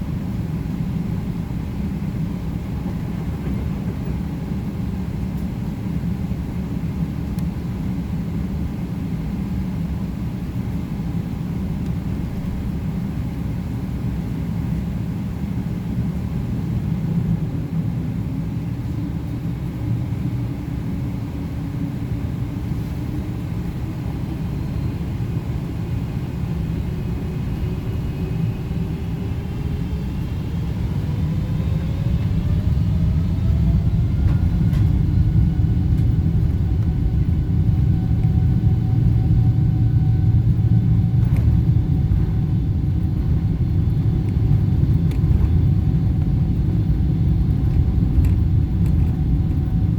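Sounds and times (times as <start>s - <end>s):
jet engines spooling up: 22.7s - 49.9s
takeoff roll rumble: 26.6s - 49.9s.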